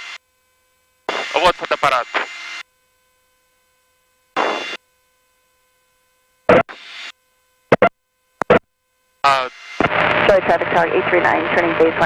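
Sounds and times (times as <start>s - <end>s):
faint electronic hum: 0.0s - 12.0s
radio static bursts: 1.1s - 2.4s, 4.4s - 4.8s.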